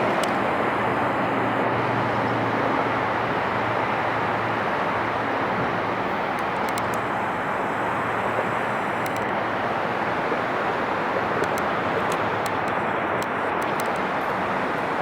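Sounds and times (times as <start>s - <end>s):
faint clicks: 0.0s - 0.6s, 6.1s - 10.4s, 11.0s - 15.0s.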